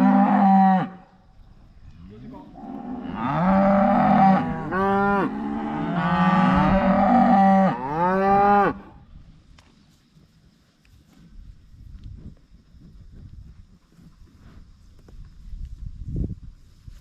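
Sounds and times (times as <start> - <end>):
cow mooing: 0.0 - 1.0, 2.5 - 8.8.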